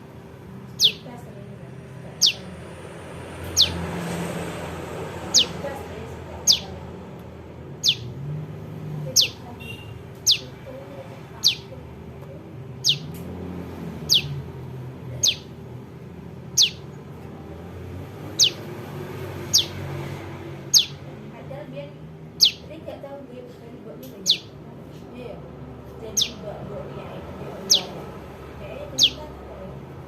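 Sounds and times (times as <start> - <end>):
bird calling: 0.7 - 1.1, 2.2 - 2.6, 3.5 - 3.9, 5.2 - 5.7, 6.4 - 6.8, 7.8 - 8.2, 9.1 - 10.6, 11.3 - 11.8, 12.8 - 13.2, 14.0 - 14.4, 15.2 - 15.6, 16.5 - 16.9, 18.3 - 18.7, 19.4 - 19.9, 20.7 - 21.1, 22.4 - 22.8, 24.2 - 24.6, 26.1 - 26.5, 27.5 - 28.1, 28.8 - 29.5.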